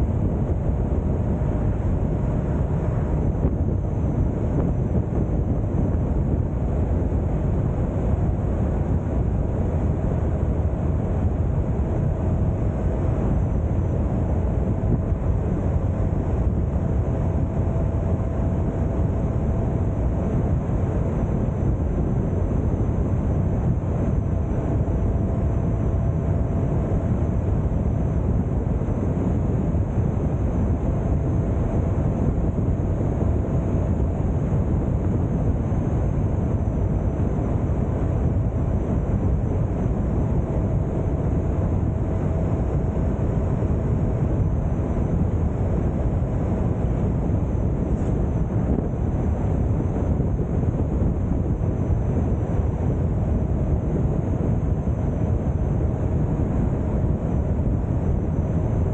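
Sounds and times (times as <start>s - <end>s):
wind rushing on microphone: 0.0s - 58.9s.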